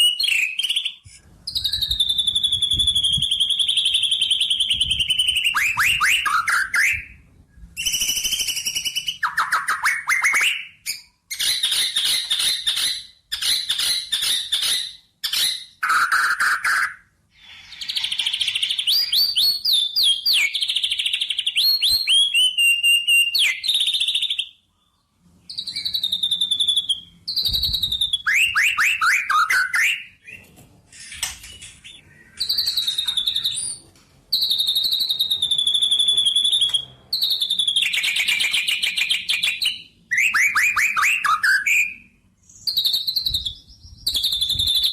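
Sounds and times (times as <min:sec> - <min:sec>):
songbird trilling and chirping: 0:31.8 - 0:39.8.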